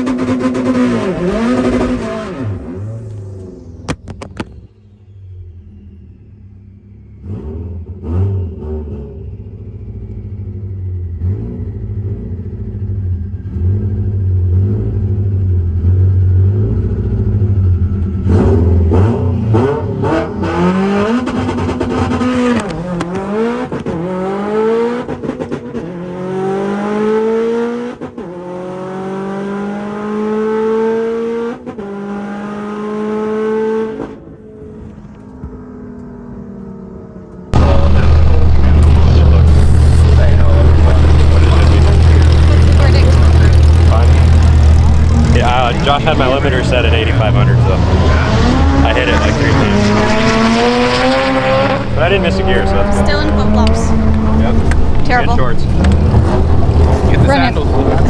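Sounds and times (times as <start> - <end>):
car engine accelerating: 0.0 - 58.0
engine hitting rev limiter: 37.2 - 58.0.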